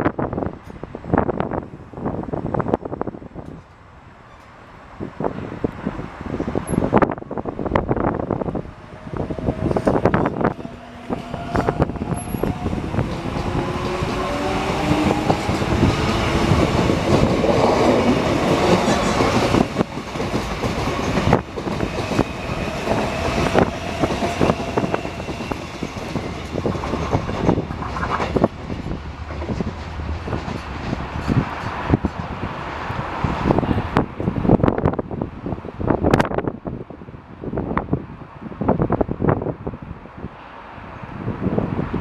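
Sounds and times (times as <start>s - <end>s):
heavy train rumble: 0.0s - 42.0s
train wheels clacking over rail joints: 12.0s - 32.8s.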